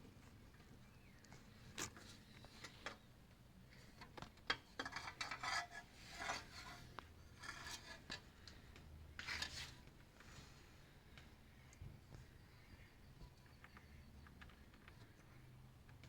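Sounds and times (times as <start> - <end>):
faint scraping and rubbing: 4.7 - 10.7.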